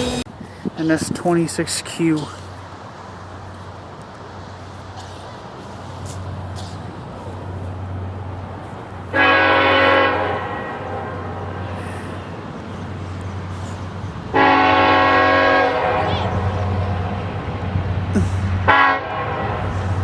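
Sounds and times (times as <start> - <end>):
locomotive air horn blasts: 0.0 - 0.3, 9.1 - 12.1, 14.3 - 17.2, 18.6 - 20.0
train rumbling: 0.0 - 20.0.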